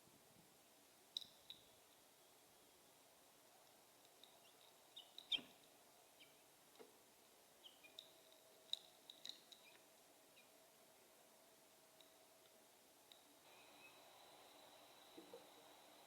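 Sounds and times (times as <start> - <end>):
small birds chirping: 4.0 - 6.9, 7.5 - 11.1, 13.1 - 14.2.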